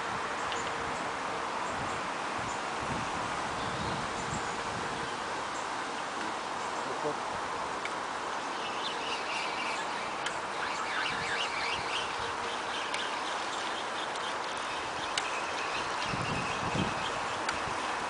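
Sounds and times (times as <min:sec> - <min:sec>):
outdoor background hiss: 0:00.0 - 0:18.0
birds chirping: 0:03.5 - 0:07.3, 0:07.9 - 0:18.0.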